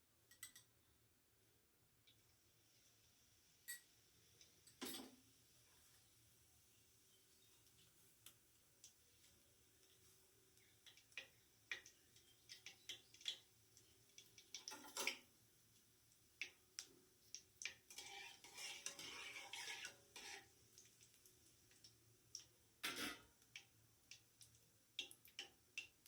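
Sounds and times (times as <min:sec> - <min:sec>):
metal utensils clinking on pot: 0:04.7 - 0:05.2, 0:17.9 - 0:20.5, 0:22.8 - 0:23.3
utensil scraping and stirring: 0:17.3 - 0:21.2.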